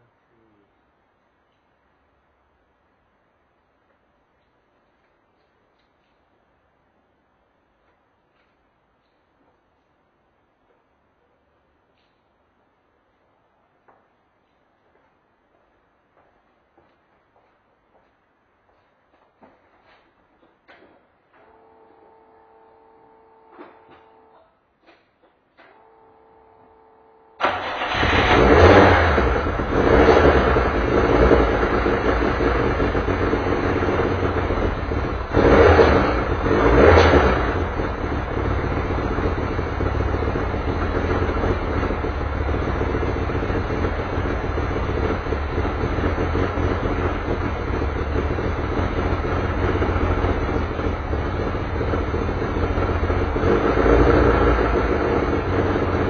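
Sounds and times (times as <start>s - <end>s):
engine throttle blips: 25.6s - 56.0s
race car engine starting and idling: 25.6s - 56.0s.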